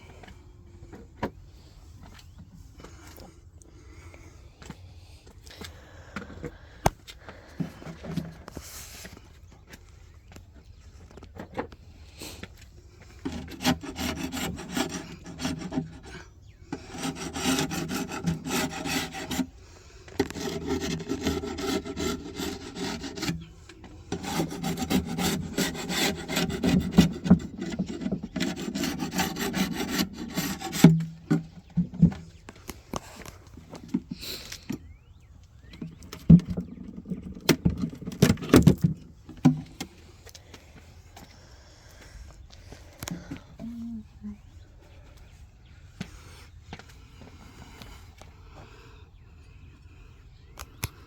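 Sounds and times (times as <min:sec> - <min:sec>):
scraping on wooden beehive parts: 0:05.6 - 0:09.4, 0:12.4 - 0:40.2.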